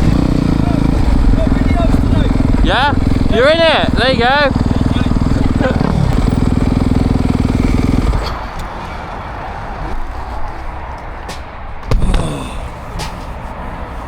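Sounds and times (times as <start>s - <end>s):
motocross bike engine running: 0.0s - 8.7s
sharp thump: 11.8s - 13.2s.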